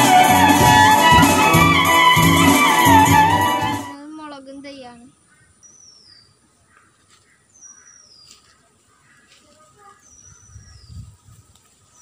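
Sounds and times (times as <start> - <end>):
faint bird chirps: 5.1 - 11.2.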